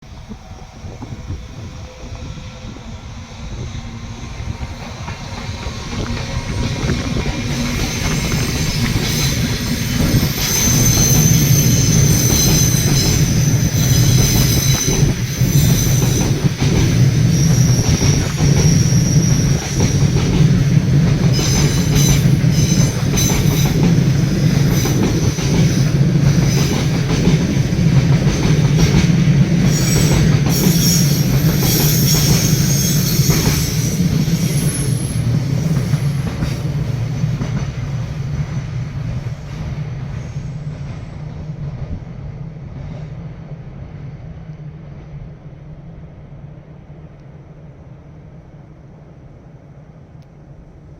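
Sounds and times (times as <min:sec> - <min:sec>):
train wheel rumble: 0:00.0 - 0:50.9
wheel squeal: 0:05.6 - 0:16.5, 0:17.2 - 0:20.2, 0:21.3 - 0:23.8, 0:29.7 - 0:36.6.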